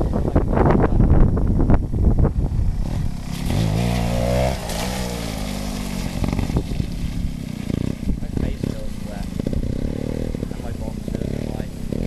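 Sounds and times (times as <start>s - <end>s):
two-stroke motorcycle engine revving: 2.4s - 12.0s.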